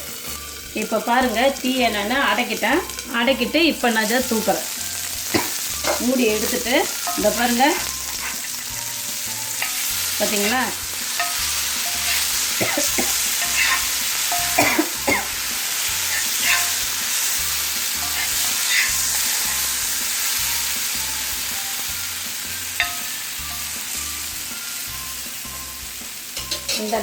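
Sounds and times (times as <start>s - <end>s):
eggs sizzling in oil: 0.0s - 27.0s.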